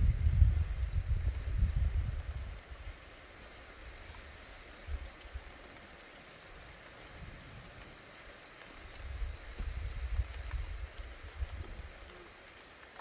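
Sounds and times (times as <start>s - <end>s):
thunder rumble: 0.0s - 2.4s
light rain hissing: 0.0s - 13.0s.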